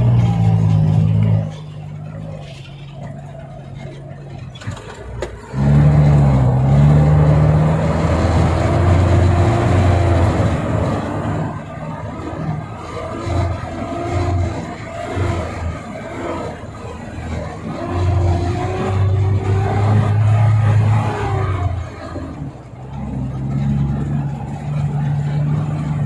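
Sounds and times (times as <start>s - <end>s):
car engine pulling: 0.0s - 26.0s.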